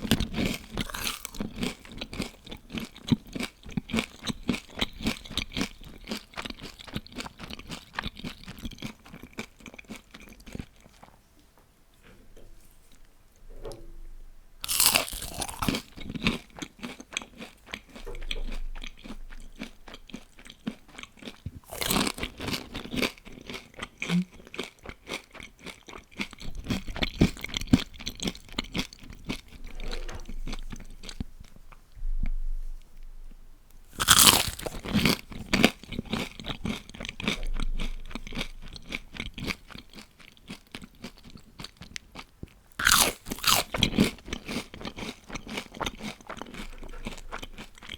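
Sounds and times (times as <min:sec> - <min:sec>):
crackly chewing: 0:00.0 - 0:11.2, 0:14.6 - 0:31.8, 0:33.9 - 0:47.9
crunching bites of fried food: 0:00.1 - 0:11.0, 0:14.6 - 0:17.9, 0:19.6 - 0:28.9, 0:34.0 - 0:47.9.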